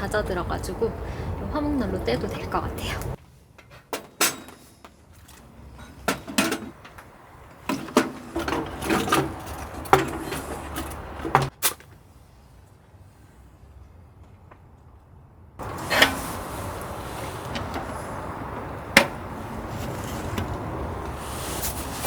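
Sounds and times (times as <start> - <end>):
wooden logs knocking and clattering: 5.2 - 11.6.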